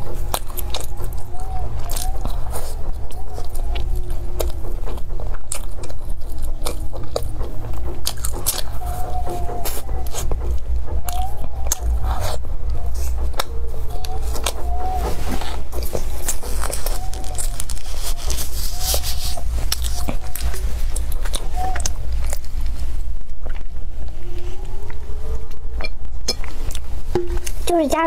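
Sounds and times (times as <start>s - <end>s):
cookie crunching close up: 15.8s - 22.8s.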